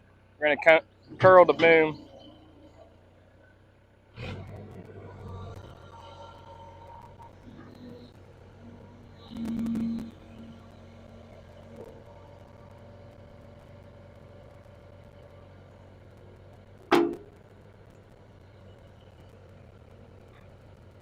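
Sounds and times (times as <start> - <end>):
diesel engine idling: 0.0 - 21.0
faint whine: 0.0 - 21.0
sharp loud knock: 16.9 - 17.2.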